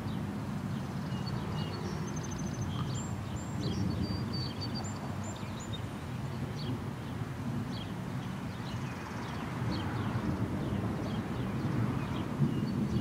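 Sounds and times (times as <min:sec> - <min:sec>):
small birds chirping: 0:00.1 - 0:05.9.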